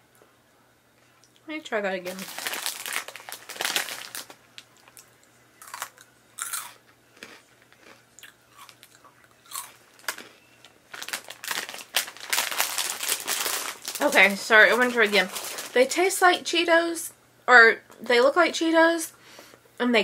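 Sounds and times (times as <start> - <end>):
crunchy snack being chewed: 2.2 - 14.0.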